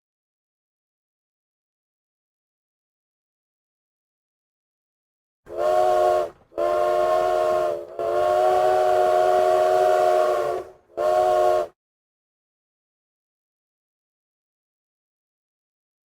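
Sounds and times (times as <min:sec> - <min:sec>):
train whistle blasts: 0:05.5 - 0:11.8.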